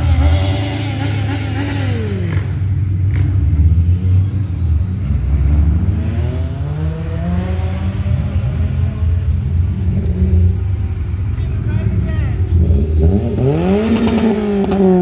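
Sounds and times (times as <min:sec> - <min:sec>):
car accelerating: 0:00.0 - 0:15.0
car engines passing close by: 0:00.0 - 0:15.0.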